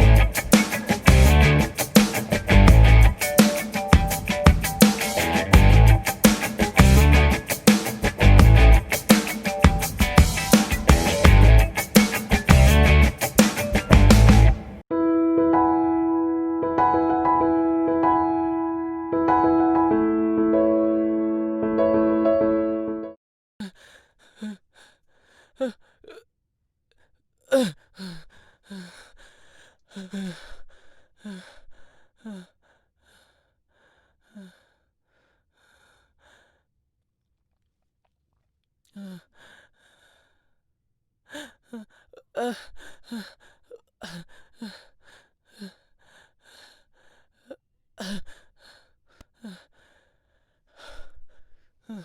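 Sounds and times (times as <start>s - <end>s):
person breathing heavily: 23.6s - 26.2s, 27.0s - 36.7s, 38.9s - 40.6s, 41.3s - 52.0s.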